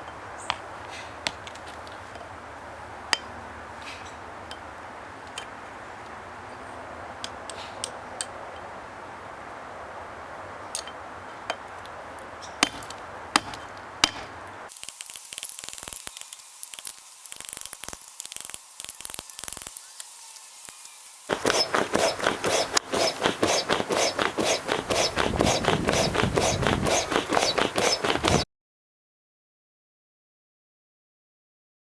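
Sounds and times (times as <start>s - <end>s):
forge fire hissing: 14.7s - 22.8s.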